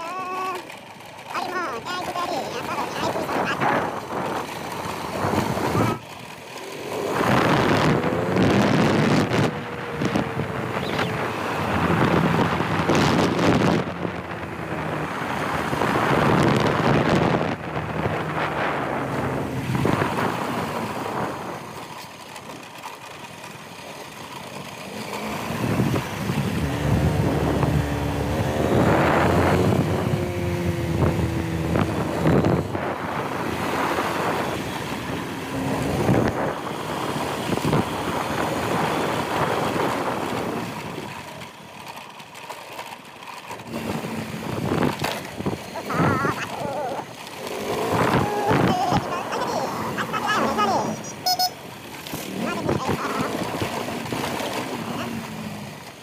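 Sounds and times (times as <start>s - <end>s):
motorcycle engine running: 0.0s - 56.0s
wind buffeting microphone: 2.7s - 6.0s, 6.9s - 21.8s, 25.4s - 41.3s, 43.7s - 51.0s.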